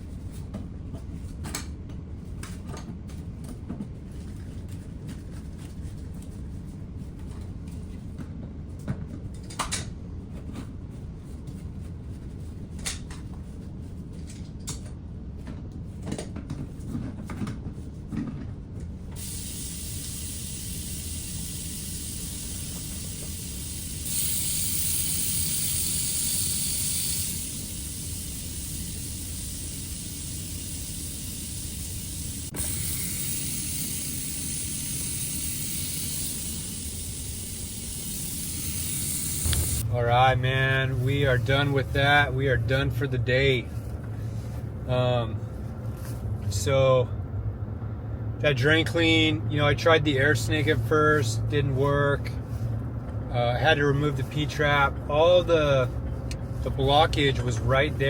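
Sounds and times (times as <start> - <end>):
water running from faucet: 19.2 - 39.8.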